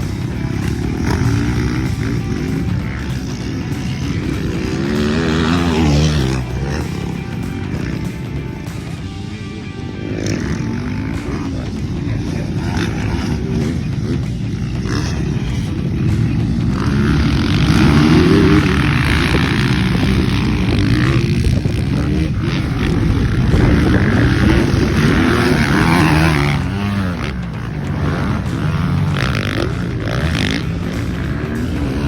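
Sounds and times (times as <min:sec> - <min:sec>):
dirt bike engine revving: 0:00.0 - 0:32.0
wind on microphone: 0:18.5 - 0:27.0.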